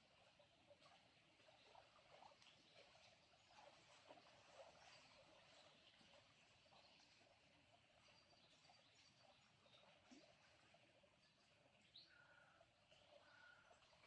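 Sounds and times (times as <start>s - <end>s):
faint bird chirps: 11.7s - 14.0s.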